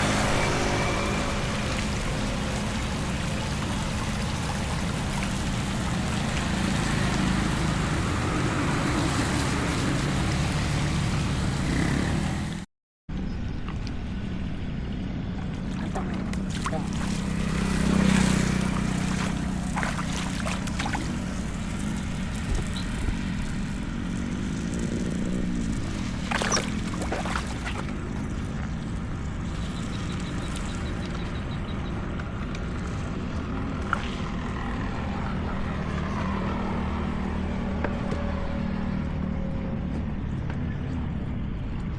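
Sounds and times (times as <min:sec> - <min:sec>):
heavy rain: 0:00.0 - 0:12.6
running water: 0:00.0 - 0:12.6, 0:15.5 - 0:28.3
vehicle passing close: 0:00.0 - 0:12.6, 0:15.5 - 0:28.3
vehicle engine hum: 0:00.0 - 0:41.9.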